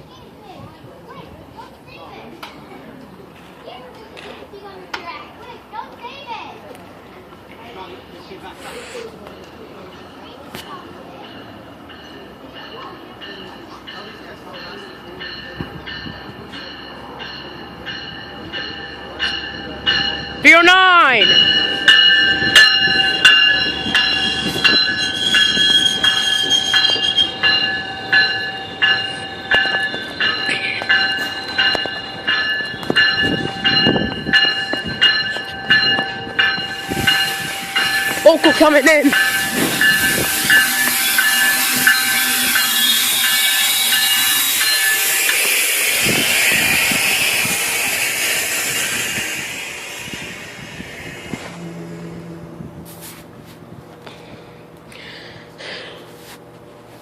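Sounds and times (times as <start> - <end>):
train wheels squealing on rails: 7.8 - 20.4, 21.1 - 53.4
train air hiss: 8.5 - 9.2, 36.5 - 52.2, 52.8 - 56.5
wheels clacking over rail joints: 21.2 - 54.2.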